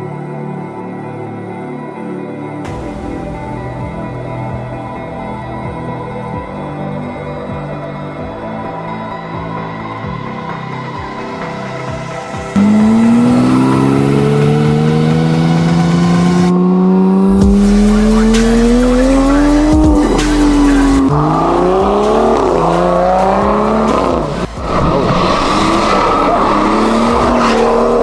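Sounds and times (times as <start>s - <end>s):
car engine accelerating hard: 12.5s - 28.0s.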